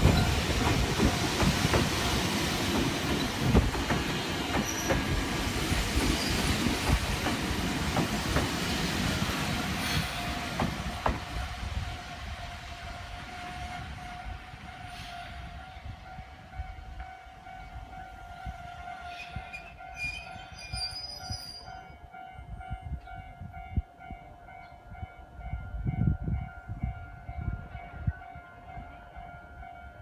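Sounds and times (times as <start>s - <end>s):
electric train rumbling: 0.0s - 30.0s
train wheel squeal: 4.5s - 5.3s, 5.9s - 6.7s, 13.3s - 15.8s, 18.3s - 21.9s
railway crossing bell ringing: 12.9s - 30.0s.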